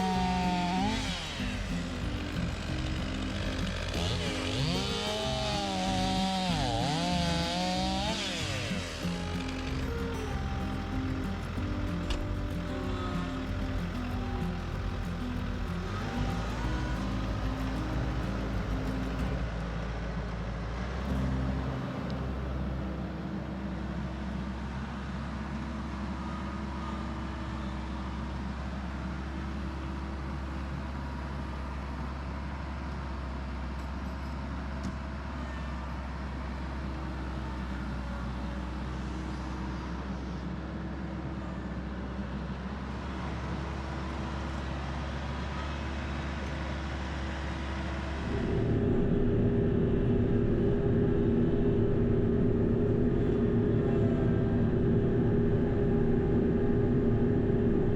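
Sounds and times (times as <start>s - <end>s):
hydraulics working: 0.0s - 27.5s
tractor diesel engine running: 0.0s - 57.9s.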